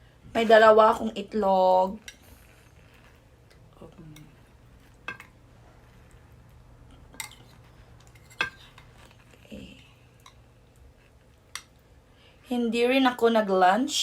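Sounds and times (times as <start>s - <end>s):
cutlery clinking against dishes: 7.2s - 8.9s.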